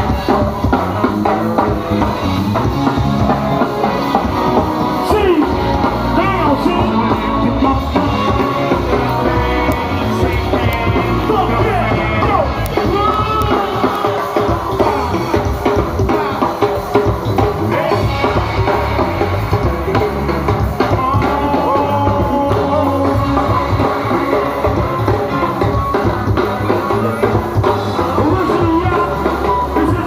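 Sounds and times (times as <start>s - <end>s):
bass: 0.0s - 30.0s
drum and percussion groove: 0.0s - 30.0s
person singing: 0.0s - 30.0s.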